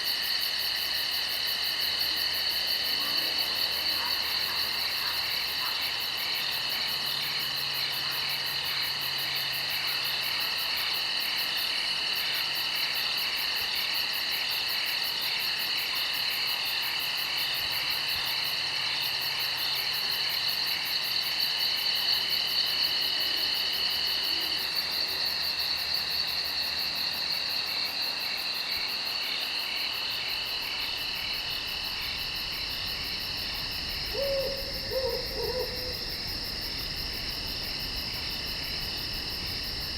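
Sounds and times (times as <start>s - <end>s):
crickets trilling: 0.0s - 39.9s
owl-like hoot: 33.9s - 36.5s.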